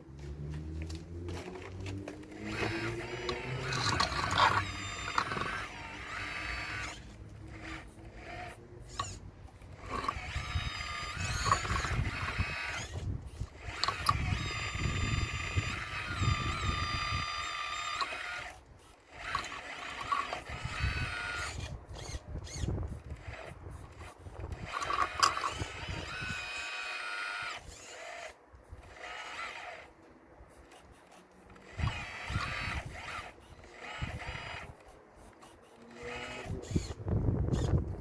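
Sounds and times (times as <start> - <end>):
rumble of stones being moved: 0.2 - 6.0, 9.0 - 17.4
toy excavator motors whining: 0.7 - 38.0.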